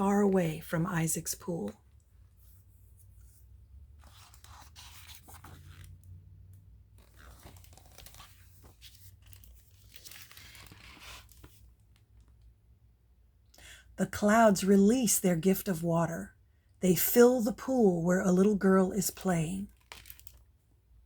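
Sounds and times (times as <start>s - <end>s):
book pages rustling: 4.0s - 6.0s, 7.0s - 12.4s.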